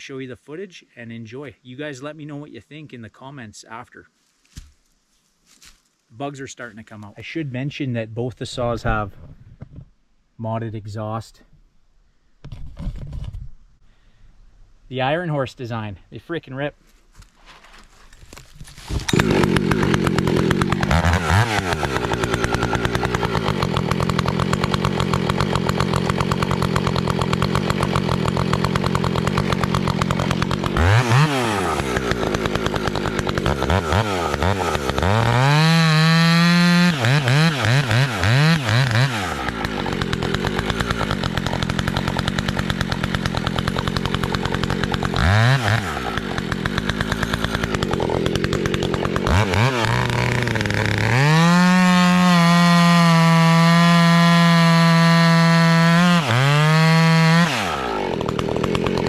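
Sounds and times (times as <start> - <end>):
chainsaw cutting firewood: 17.6 - 59.0.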